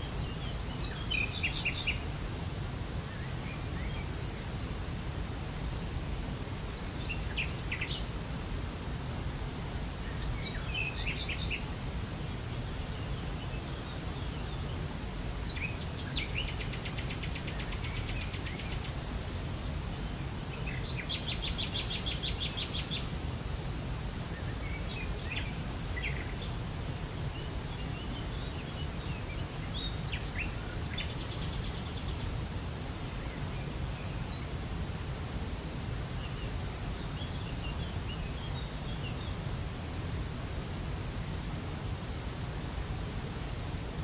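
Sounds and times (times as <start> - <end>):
small birds chirping: 0.0 - 23.5, 24.1 - 34.8.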